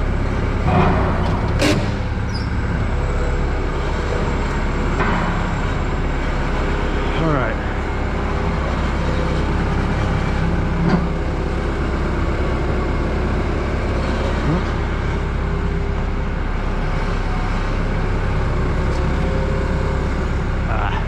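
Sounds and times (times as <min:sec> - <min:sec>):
vehicle engine idling: 0:00.0 - 0:21.0
clunk: 0:00.6 - 0:03.0, 0:04.0 - 0:05.9, 0:10.8 - 0:11.2
brief squeak: 0:01.6 - 0:02.7.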